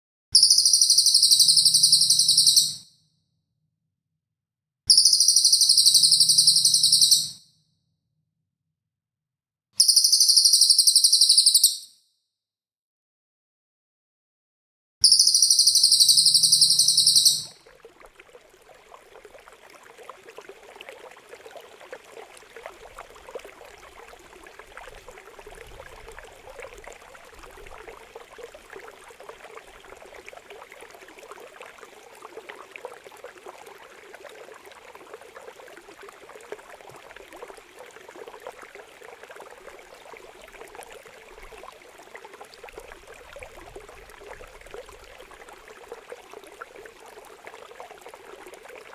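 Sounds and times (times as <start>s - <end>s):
water trickling and splashing: 15.7s - 48.9s.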